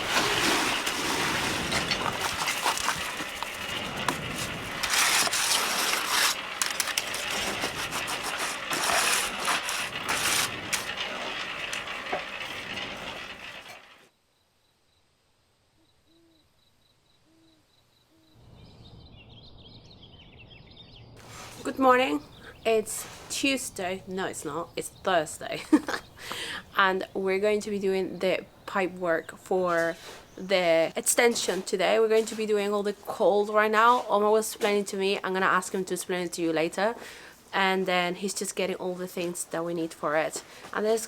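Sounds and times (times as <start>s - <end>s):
rattling and scraping concrete work: 0.0s - 14.1s, 29.5s - 37.0s
faint bird chirping: 14.3s - 21.2s, 22.1s - 22.9s.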